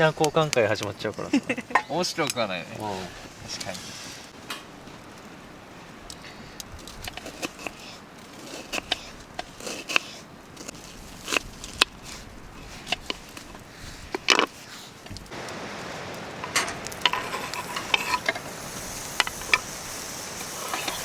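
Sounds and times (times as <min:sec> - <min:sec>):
campfire wood crackling: 0:00.0 - 0:21.0.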